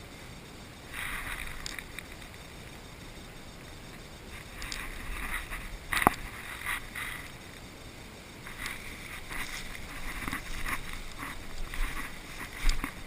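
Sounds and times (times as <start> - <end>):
rustling and scuffing: 8.5 - 13.0.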